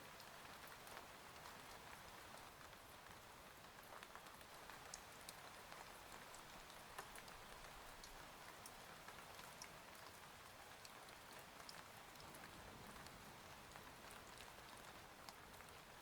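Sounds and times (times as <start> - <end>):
faint rain: 0.0 - 16.0.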